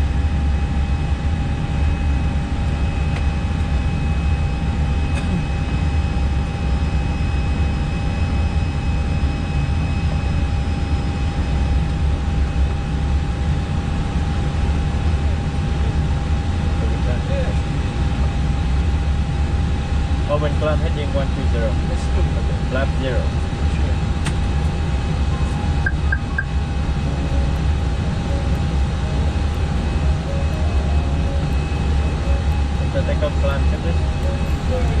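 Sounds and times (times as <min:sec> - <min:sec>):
engine and airflow rush: 0:11.4 - 0:35.0.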